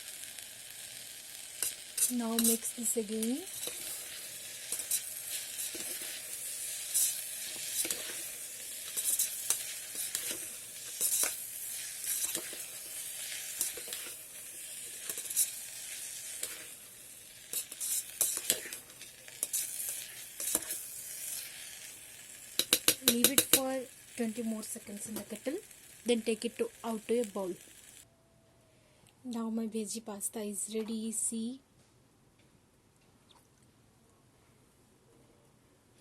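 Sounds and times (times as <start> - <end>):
steady hiss: 0.0 - 28.1
utensil scraping metal pot: 1.6 - 22.0, 22.6 - 23.8.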